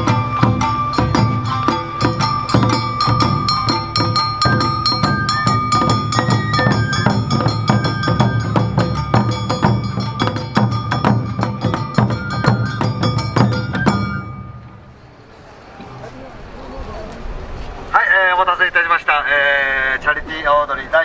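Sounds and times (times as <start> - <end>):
bamboo flute melody: 0.0 - 14.9
small metal gong: 0.0 - 14.9
drums beating: 0.0 - 15.0.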